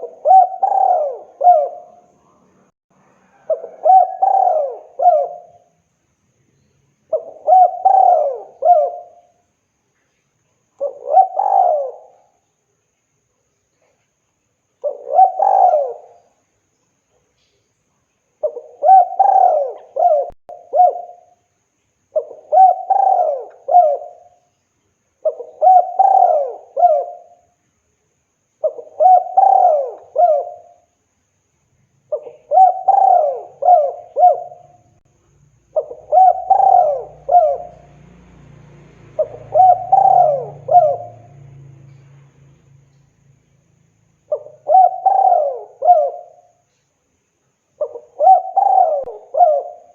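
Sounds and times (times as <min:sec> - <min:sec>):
dove cooing: 0:00.0 - 0:02.4, 0:03.3 - 0:05.8, 0:07.1 - 0:09.4, 0:10.8 - 0:12.4, 0:14.8 - 0:16.4, 0:18.4 - 0:21.4, 0:22.2 - 0:24.4, 0:25.2 - 0:27.4, 0:28.6 - 0:30.9, 0:32.1 - 0:34.9, 0:35.7 - 0:42.0, 0:44.2 - 0:46.8, 0:47.8 - 0:49.9
faint low hum: 0:00.0 - 0:49.9.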